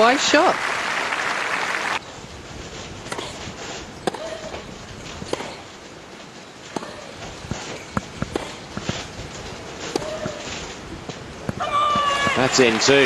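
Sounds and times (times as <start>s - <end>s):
applause: 0.2s - 2.0s, 12.4s - 13.0s
tennis ball impacts and bounces: 3.1s - 5.7s, 6.6s - 9.1s, 9.8s - 12.4s.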